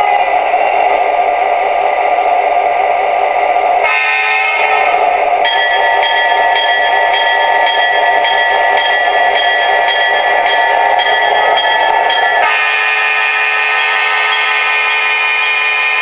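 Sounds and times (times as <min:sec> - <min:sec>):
simulated diesel locomotive sounds: 0:00.0 - 0:16.0
locomotive bell ringing: 0:05.4 - 0:16.0.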